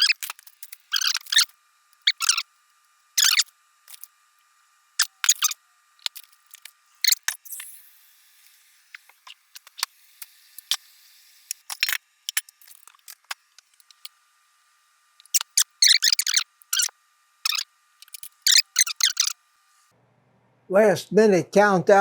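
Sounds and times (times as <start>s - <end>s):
utensils and cookware clicking: 11.5s - 14.1s, 15.2s - 19.4s.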